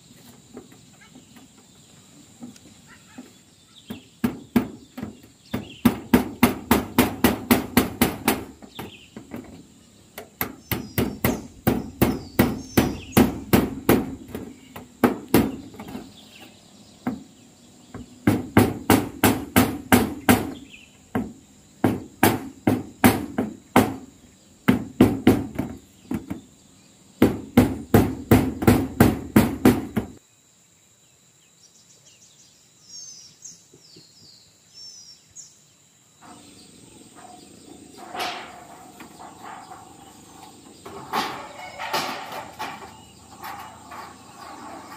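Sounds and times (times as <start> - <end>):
hammer striking nails: 4.2 - 8.9, 10.2 - 16.0, 18.2 - 24.1, 24.7 - 26.4, 27.2 - 30.2
faint bird chirps: 31.0 - 41.9.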